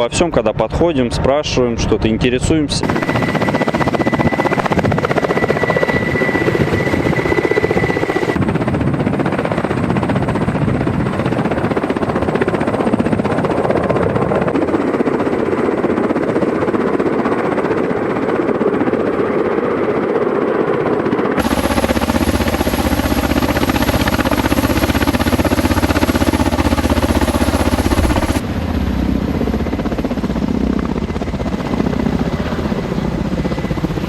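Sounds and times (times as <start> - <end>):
helicopter rotor beat: 2.0 - 34.0
thin high whine: 2.8 - 8.4, 21.4 - 28.4.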